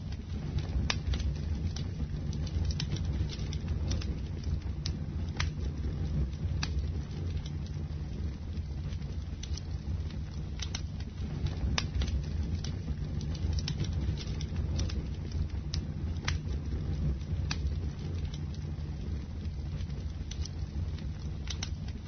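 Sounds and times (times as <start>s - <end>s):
bonfire flames rumbling: 0.0s - 22.0s
burning wood crackling and popping: 0.0s - 22.0s.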